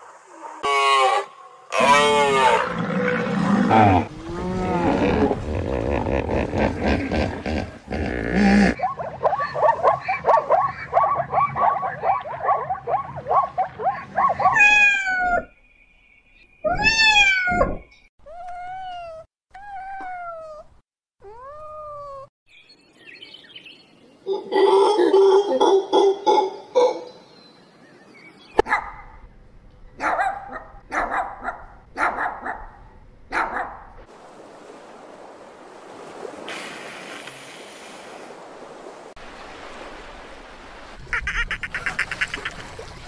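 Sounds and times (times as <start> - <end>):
low rumbling animal call: 0.6 - 8.8.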